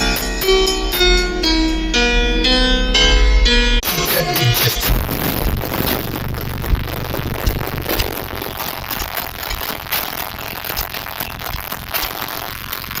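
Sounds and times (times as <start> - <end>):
bass-heavy music on car stereo: 3.8 - 13.0.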